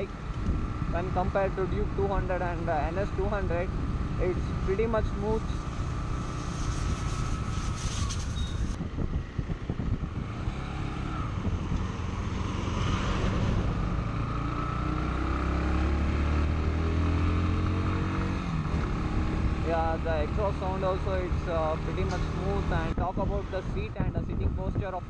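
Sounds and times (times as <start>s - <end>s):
motorcycle engine running: 0.0s - 15.8s.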